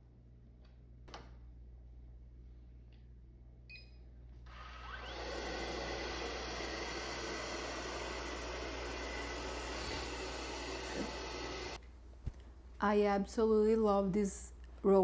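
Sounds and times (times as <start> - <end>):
vacuum motor whining: 4.5 - 11.8.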